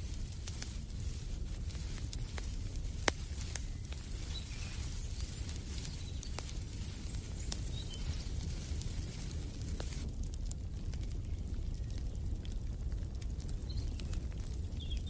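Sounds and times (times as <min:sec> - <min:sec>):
wood fire crackling: 0:00.0 - 0:15.0
faint bird chirps: 0:03.3 - 0:08.7.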